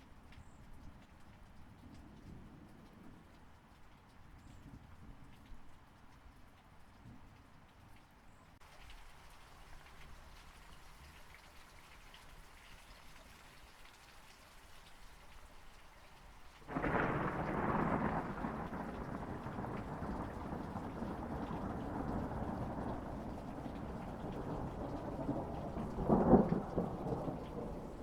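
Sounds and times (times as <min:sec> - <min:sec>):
steady rain: 0:00.0 - 0:28.0
thunder rumbling: 0:16.7 - 0:28.0.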